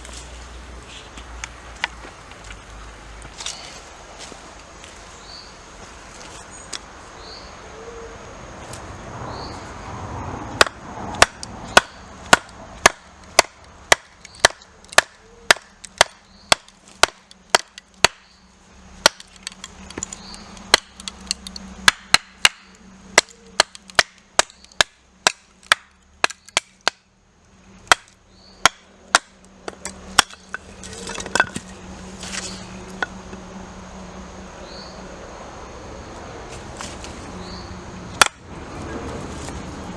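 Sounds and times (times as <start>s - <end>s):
axe chopping wood: 10.6s - 18.3s, 19.0s - 27.0s, 27.9s - 31.7s, 38.2s - 38.4s.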